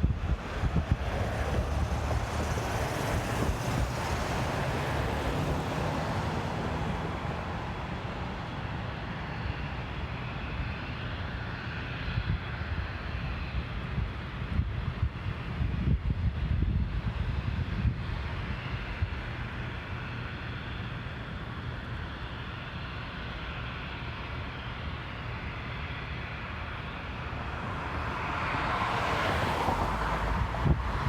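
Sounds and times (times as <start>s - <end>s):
wind buffeting microphone: 0.0s - 6.0s, 12.1s - 19.6s, 29.4s - 31.0s.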